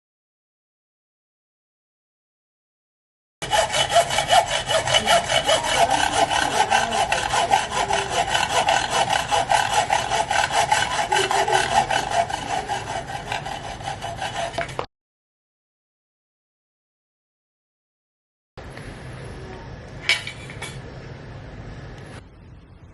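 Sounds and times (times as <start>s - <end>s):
band saw cutting metal: 3.4s - 14.9s.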